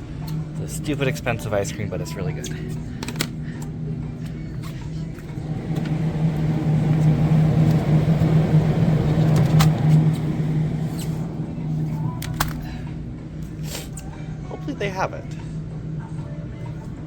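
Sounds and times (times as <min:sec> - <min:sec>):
freezer hum: 0:00.0 - 0:17.0
rushing noise: 0:05.3 - 0:12.2.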